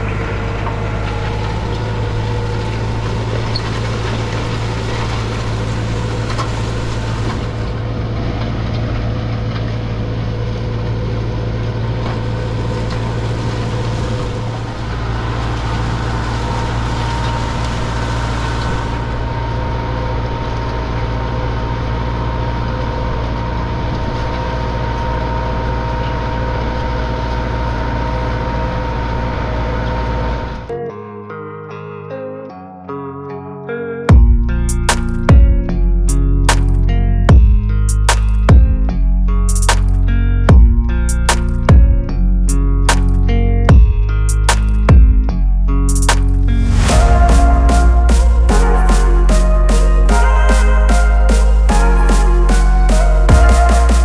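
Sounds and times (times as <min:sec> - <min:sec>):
tractor diesel engine running: 0:00.0 - 0:30.7, 0:45.9 - 0:54.0.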